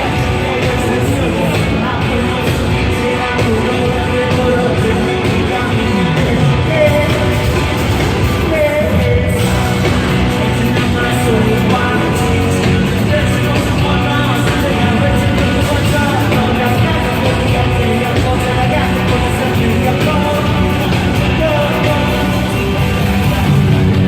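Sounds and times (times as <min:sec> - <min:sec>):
live rock band playing: 0:00.0 - 0:24.0
person singing: 0:00.0 - 0:24.0.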